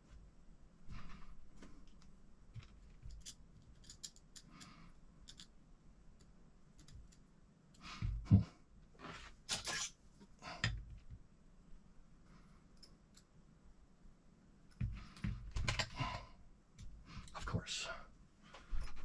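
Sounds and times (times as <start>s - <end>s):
small parts clicking and rustling: 1.6s - 5.6s.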